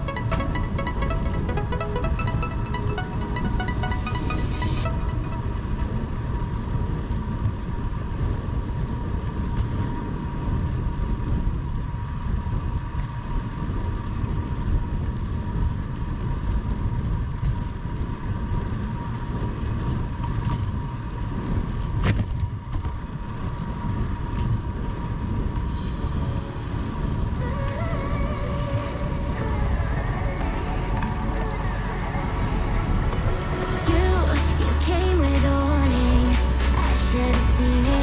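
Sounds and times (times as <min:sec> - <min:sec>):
faint whine: 0:25.5 - 0:38.0.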